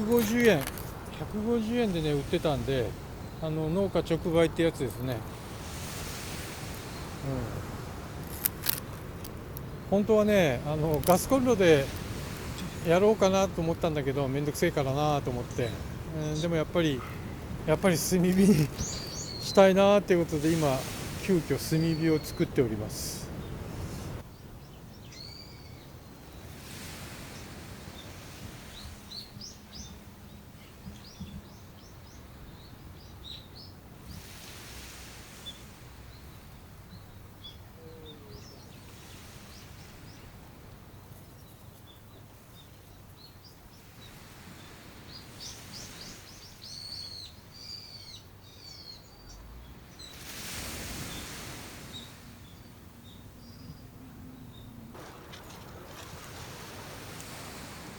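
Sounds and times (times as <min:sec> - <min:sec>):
small birds chirping: 0:06.5 - 0:26.6, 0:27.3 - 0:34.3, 0:35.4 - 0:57.9
broad hiss: 0:10.6 - 0:13.6, 0:16.8 - 0:24.2, 0:34.1 - 0:36.0, 0:55.0 - 0:57.9.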